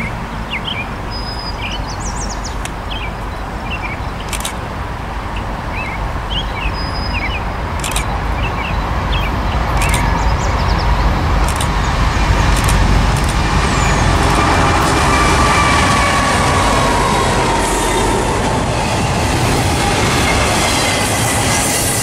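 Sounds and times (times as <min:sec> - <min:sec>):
songbirds chirping: 0:00.0 - 0:14.9
train rumbling: 0:00.0 - 0:22.0.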